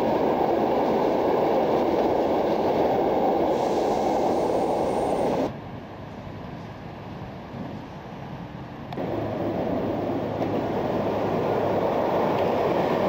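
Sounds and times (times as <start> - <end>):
train wheels rumbling on track: 0.0 - 13.0
wind-like background: 0.0 - 13.0
faint high squeal: 3.5 - 5.5.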